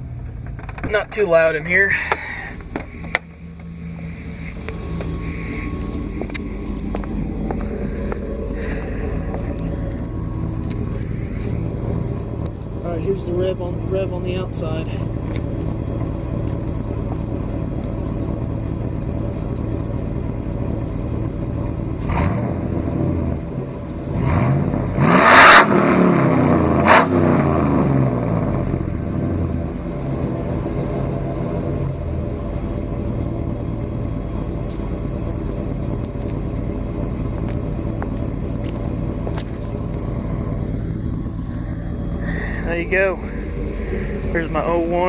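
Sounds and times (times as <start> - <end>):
truck engine idling and revving: 0.0 - 45.0.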